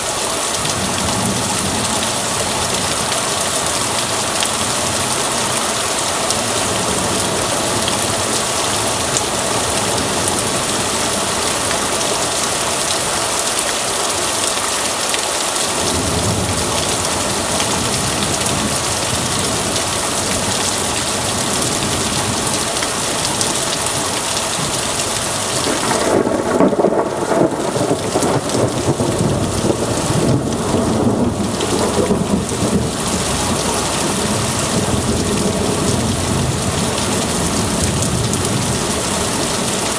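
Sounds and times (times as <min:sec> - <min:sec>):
heavy rain pouring: 0:00.0 - 0:39.9
thunder rumbling: 0:25.5 - 0:39.7.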